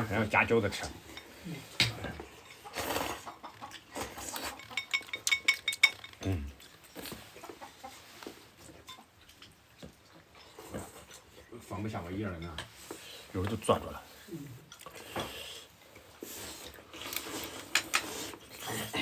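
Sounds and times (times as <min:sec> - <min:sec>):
bowls and utensils clinking: 0:00.7 - 0:02.7, 0:04.0 - 0:07.3.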